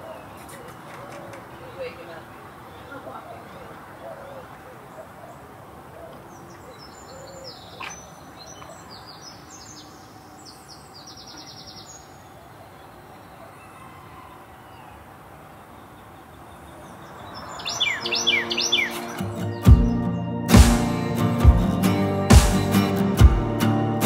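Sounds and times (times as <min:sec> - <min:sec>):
steady background hiss: 0:00.0 - 0:19.5
songbirds chirping and trilling: 0:00.0 - 0:24.0.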